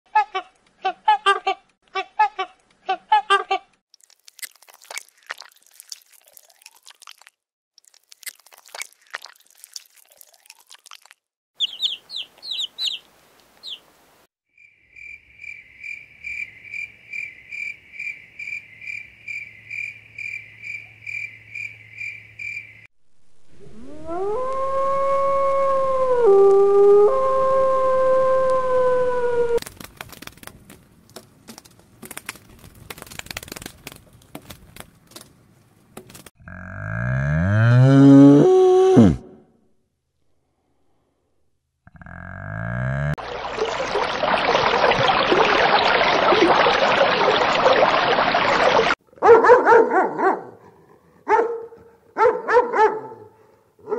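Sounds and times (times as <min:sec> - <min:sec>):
crackles: 0:03.9 - 0:11.3, 0:29.6 - 0:36.4
high chirps: 0:11.6 - 0:13.8
wolf howling: 0:23.6 - 0:29.6
cow mooing: 0:36.4 - 0:39.3, 0:41.9 - 0:43.2.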